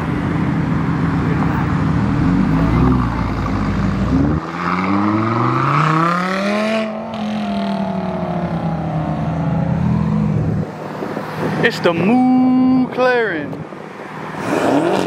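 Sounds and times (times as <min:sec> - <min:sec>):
car engine revving: 0:00.8 - 0:11.7, 0:14.3 - 0:15.0.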